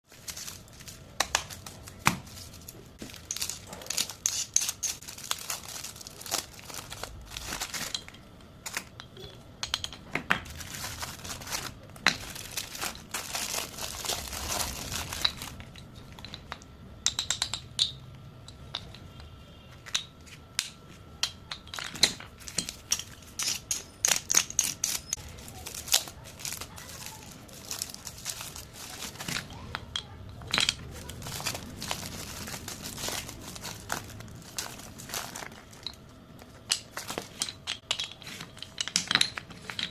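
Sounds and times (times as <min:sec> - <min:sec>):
plastic chip packets crinkling: 0:00.0 - 0:09.0, 0:10.4 - 0:16.3, 0:22.3 - 0:37.4.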